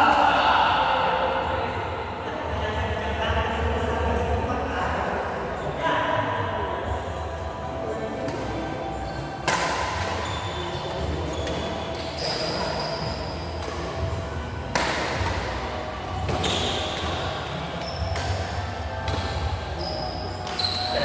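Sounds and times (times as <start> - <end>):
background murmur: 0.0 - 21.0.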